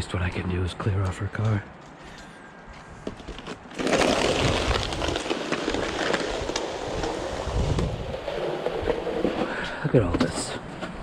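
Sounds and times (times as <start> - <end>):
wet snow crunching: 3.7 - 7.6.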